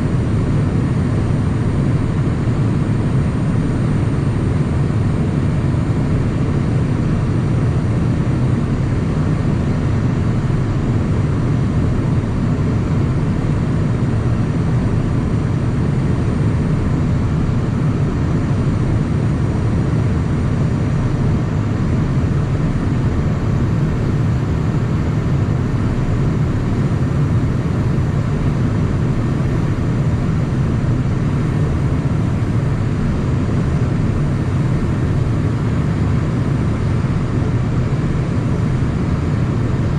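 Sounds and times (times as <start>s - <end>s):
jet cockpit rumble: 0.0s - 39.9s.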